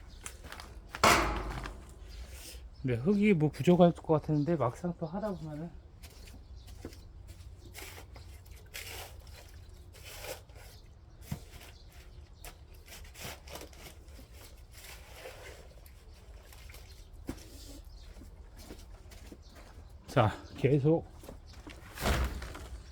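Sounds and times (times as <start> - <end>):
shovel scraping soil: 7.8 - 11.7.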